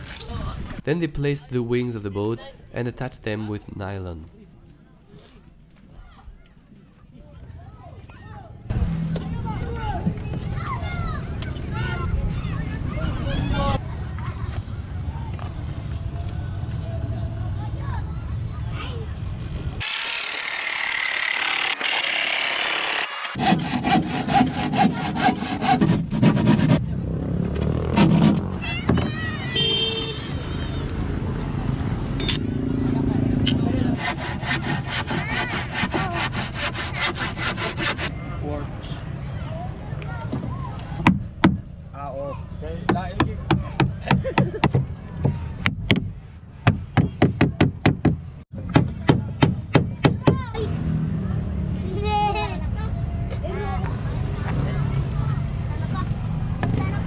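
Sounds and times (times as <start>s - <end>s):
saw cutting wood: 19.8s - 26.8s, 34.0s - 38.1s.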